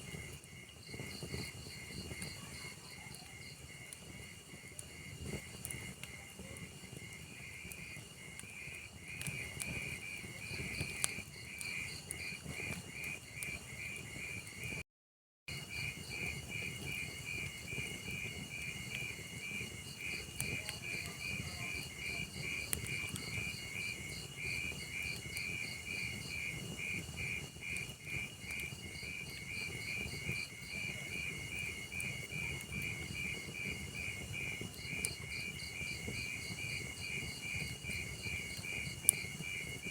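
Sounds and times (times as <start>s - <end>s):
log fire crackling: 0.0s - 14.8s, 15.5s - 39.9s
cricket chirping: 15.5s - 39.8s.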